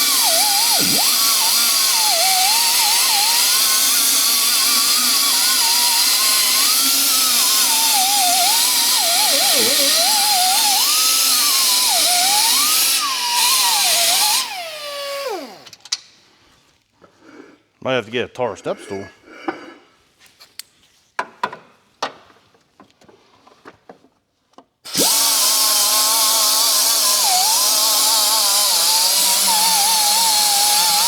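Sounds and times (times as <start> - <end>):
power drill whining: 0.0 - 15.8, 24.9 - 31.0.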